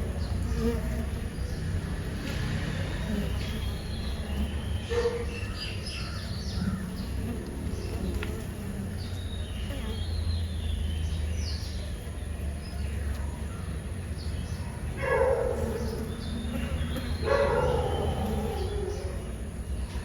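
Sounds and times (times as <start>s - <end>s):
dog barking: 4.9s - 5.4s, 15.0s - 16.1s, 17.2s - 19.2s.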